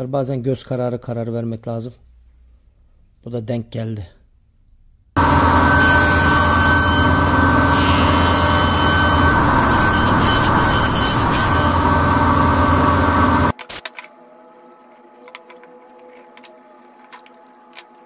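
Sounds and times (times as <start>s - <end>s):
power woodworking machine whining: 5.2s - 13.5s
faint clicks and handling: 14.8s - 18.0s.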